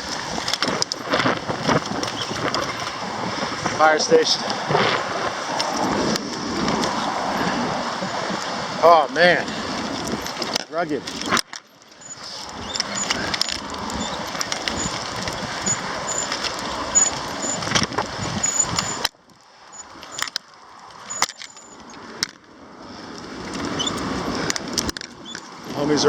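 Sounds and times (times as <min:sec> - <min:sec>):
wind buffeting microphone: 0:00.0 - 0:19.1, 0:19.7 - 0:26.0
sharp clicks: 0:10.0 - 0:22.4.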